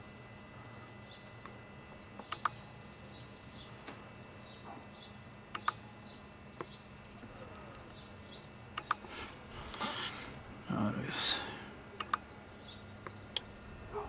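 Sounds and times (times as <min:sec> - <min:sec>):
low steady hum: 0:00.0 - 0:14.0
laptop keys and mouse clicks: 0:05.5 - 0:05.8, 0:08.8 - 0:09.0.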